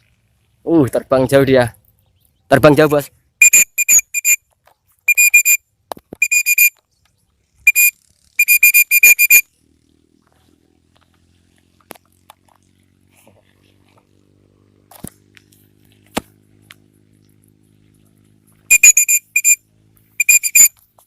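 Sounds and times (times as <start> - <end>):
short whistle toots: 3.4 - 4.4, 5.1 - 5.6, 6.2 - 6.8, 7.7 - 9.4, 18.7 - 19.6, 20.2 - 20.8.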